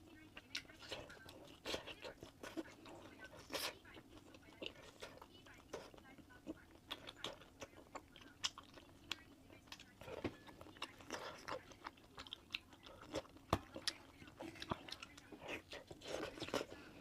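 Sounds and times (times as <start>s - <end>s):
chewing meat: 0.0s - 17.0s.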